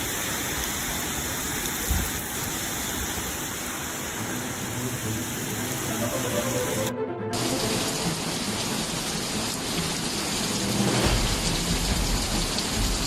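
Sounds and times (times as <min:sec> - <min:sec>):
heavy rain pouring: 0:00.0 - 0:13.0
low rumble: 0:10.1 - 0:13.0.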